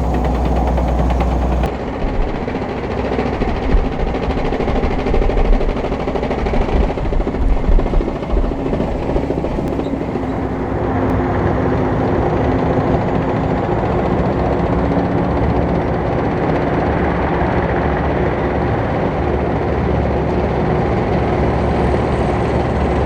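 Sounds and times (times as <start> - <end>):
tank tracks clattering: 0.0 - 1.7
diesel engine running: 0.0 - 16.9.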